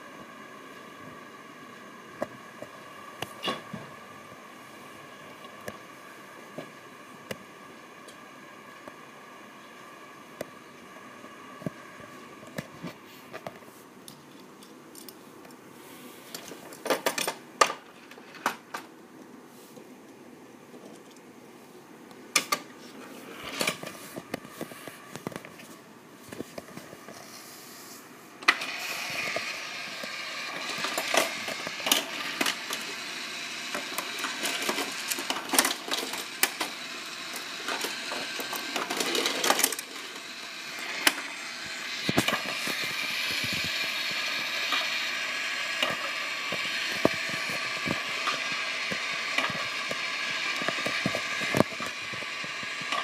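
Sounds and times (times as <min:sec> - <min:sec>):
toy cars clicking and rattling: 0:28.5 - 0:53.0
toy motor whirring: 0:28.5 - 0:53.0.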